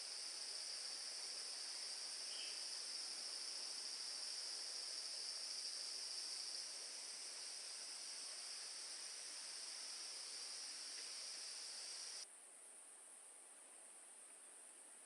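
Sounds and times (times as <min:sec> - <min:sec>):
forest insects shrill chorus: 0:01.6 - 0:04.4, 0:07.4 - 0:12.2.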